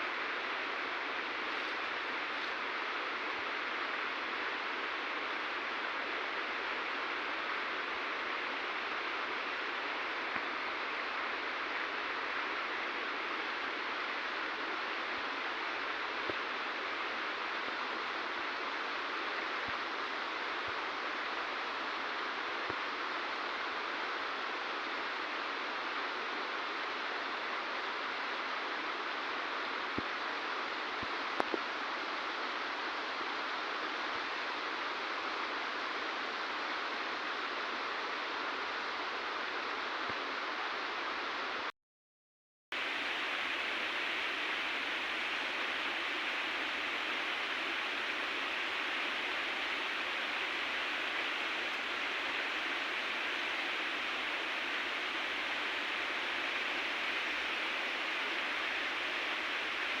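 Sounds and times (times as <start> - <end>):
river water rushing: 0.0 - 17.5, 42.8 - 60.0.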